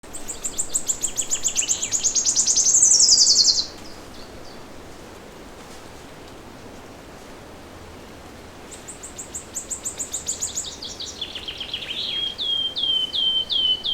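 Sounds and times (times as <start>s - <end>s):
faint outdoor background: 0.0s - 13.9s
lower bird calling: 0.1s - 4.6s, 8.9s - 13.9s
songbird trilling: 0.1s - 4.6s, 8.9s - 13.9s.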